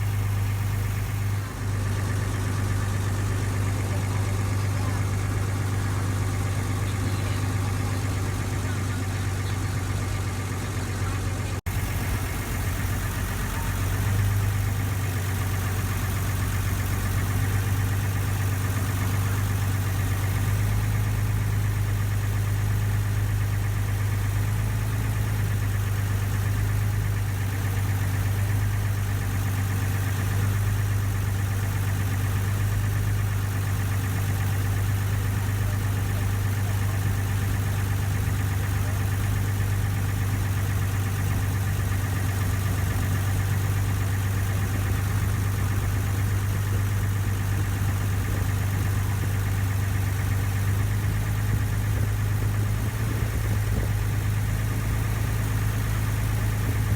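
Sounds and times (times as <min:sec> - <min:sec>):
ferry engine humming: 0:00.0 - 0:56.9.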